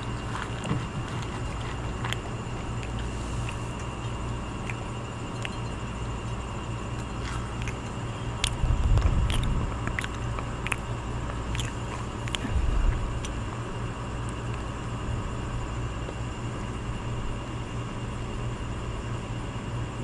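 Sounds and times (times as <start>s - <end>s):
crunchy food being chewed: 0.0s - 16.8s
low background hum: 0.0s - 20.0s
heavy low thumps: 8.6s - 9.9s.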